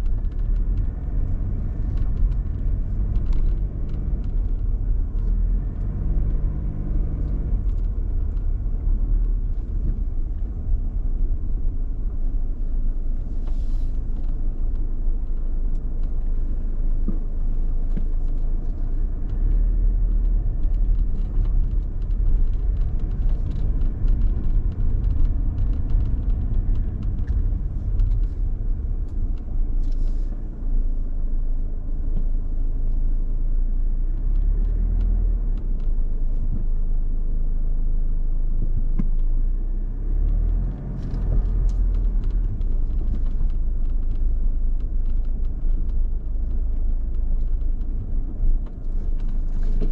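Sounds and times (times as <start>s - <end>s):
car engine and road rumble: 0.0s - 49.9s
small ticks and knocks: 17.9s - 30.0s, 40.2s - 49.9s.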